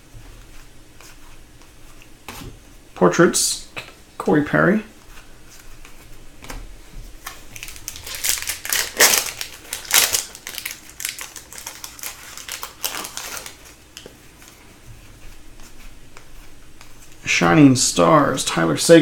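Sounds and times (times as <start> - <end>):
wrapper crinkling: 7.2 - 13.8.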